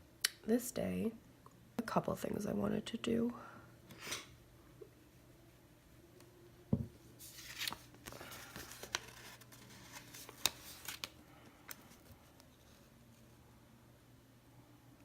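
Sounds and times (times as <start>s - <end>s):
paper rustling: 7.2s - 12.9s.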